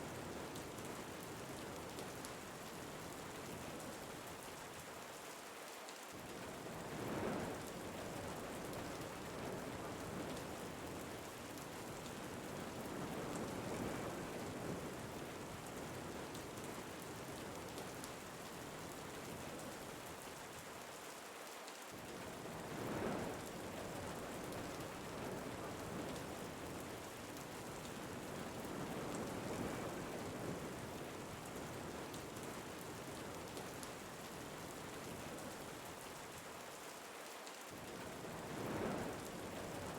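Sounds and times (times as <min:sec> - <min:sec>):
steady rain: 0:00.0 - 0:39.9
wind gusts: 0:22.4 - 0:27.0, 0:27.6 - 0:32.0, 0:37.9 - 0:39.9.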